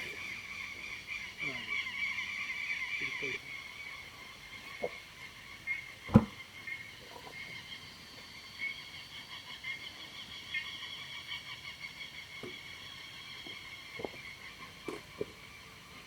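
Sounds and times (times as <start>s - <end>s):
high-pitched animal chorus: 0.0s - 16.0s
sharp knock: 6.1s - 6.3s.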